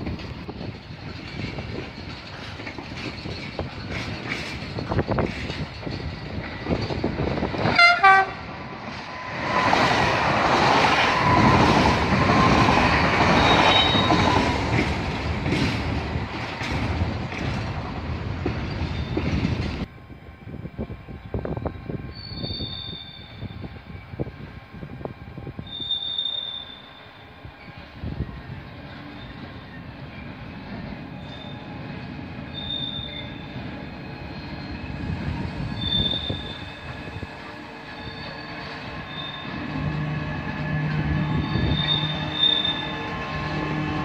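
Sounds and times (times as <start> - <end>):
wheels clickety-clack on rail joints: 0.0 - 19.9, 25.0 - 44.0
passenger train rushing past: 0.0 - 44.0
train horn: 7.6 - 8.6.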